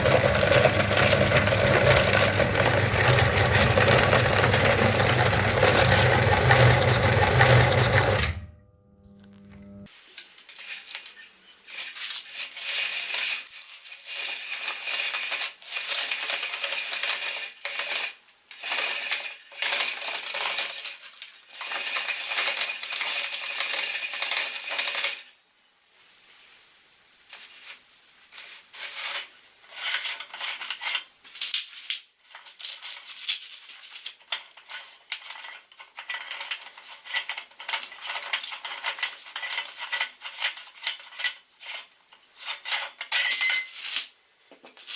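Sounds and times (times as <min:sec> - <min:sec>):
meat grinder crushing matchsticks: 0:00.0 - 0:08.4.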